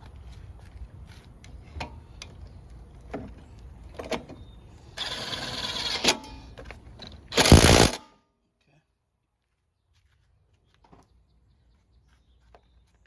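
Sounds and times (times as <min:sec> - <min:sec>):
power driver buzzing: 0:07.4 - 0:08.0.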